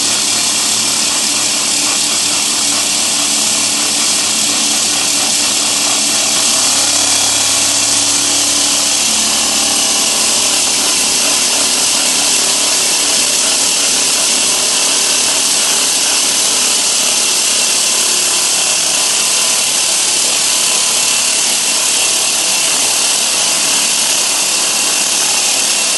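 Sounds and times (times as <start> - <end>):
low machine hum: 0.0 - 17.2
concrete saw cutting concrete: 0.0 - 25.9.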